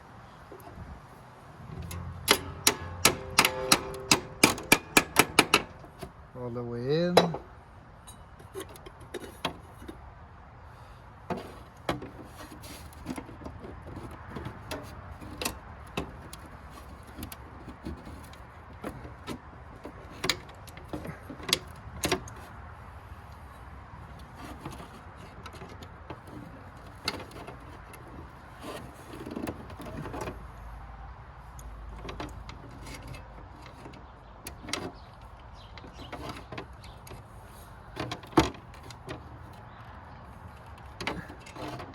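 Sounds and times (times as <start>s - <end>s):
metal parts and tools clicking: 1.7s - 6.1s.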